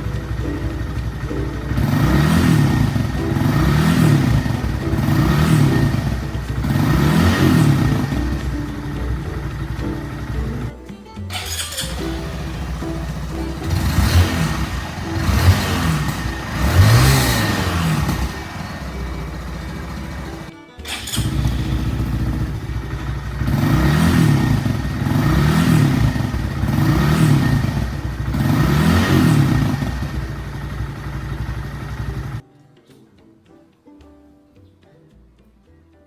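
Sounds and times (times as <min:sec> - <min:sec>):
motorcycle engine idling and revving: 0:00.0 - 0:10.7, 0:11.3 - 0:32.4.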